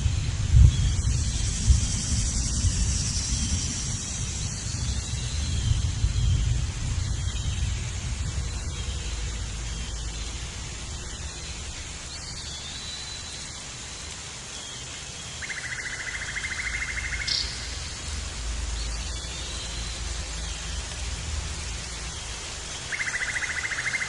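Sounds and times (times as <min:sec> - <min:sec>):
steady forest hiss: 0:00.0 - 0:24.0
faint high calls: 0:22.9 - 0:24.0.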